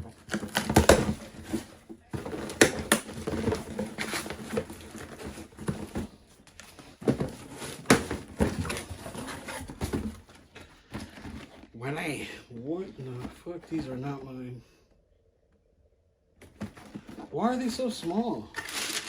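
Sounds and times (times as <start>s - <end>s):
sharp knocks and clatters: 0.0s - 11.6s
paper and cardboard rustling: 0.0s - 14.2s, 16.4s - 19.0s.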